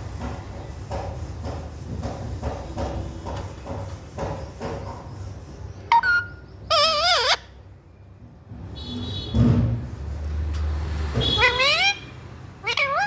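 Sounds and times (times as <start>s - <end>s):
parrot calling: 5.9s - 7.6s, 11.4s - 13.0s.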